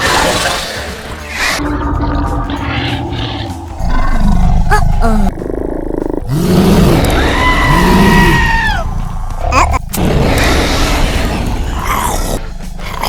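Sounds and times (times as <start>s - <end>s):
animal-like roars: 1.3s - 8.9s.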